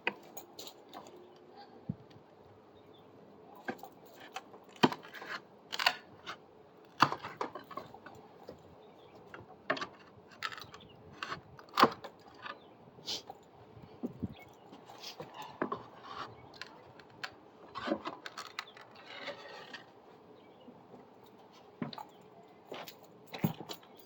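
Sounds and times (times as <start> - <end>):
hand tools knocking and scraping wood: 15.1 - 19.9.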